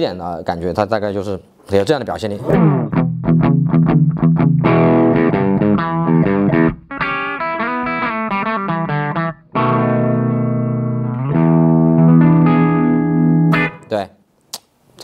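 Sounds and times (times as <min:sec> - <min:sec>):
overdriven electric guitar: 0:02.5 - 0:13.9.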